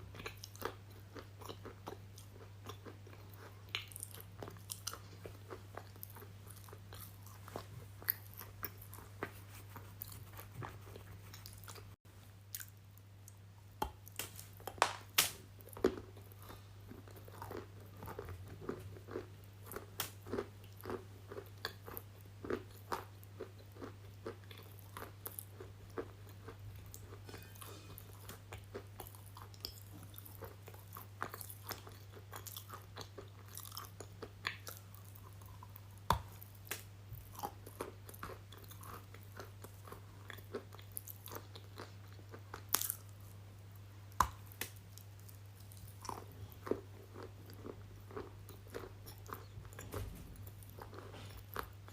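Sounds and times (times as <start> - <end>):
crunching bites and chewing: 13.8 - 43.4.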